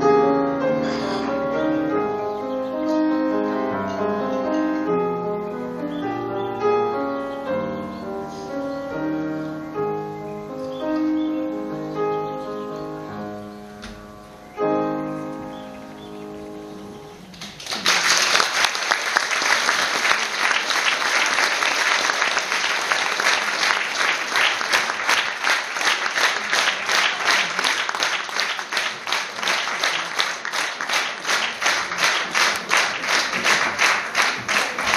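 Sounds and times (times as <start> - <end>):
piano notes: 0.0 - 17.7
audience applauding: 17.3 - 34.9.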